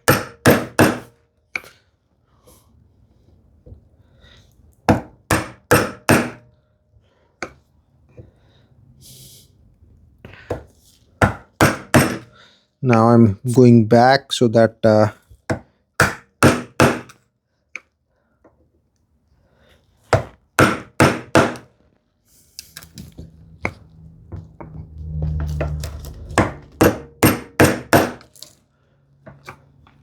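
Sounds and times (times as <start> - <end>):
mallet striking chisel into wood: 0.0 - 1.1, 4.9 - 6.4, 11.2 - 12.3, 15.5 - 17.2, 20.2 - 21.7, 26.4 - 28.3
low hum: 23.2 - 26.8.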